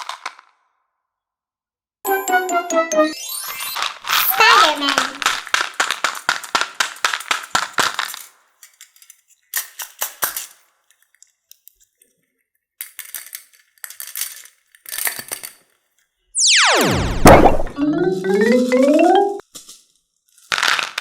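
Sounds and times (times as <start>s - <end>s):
toy pieces clicking and clinking: 3.2s - 11.0s, 12.8s - 15.9s.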